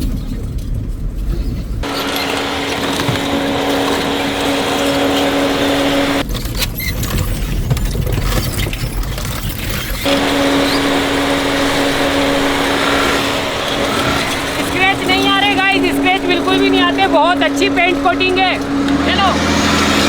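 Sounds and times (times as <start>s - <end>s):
car engine hum: 1.8s - 6.3s, 10.0s - 20.0s.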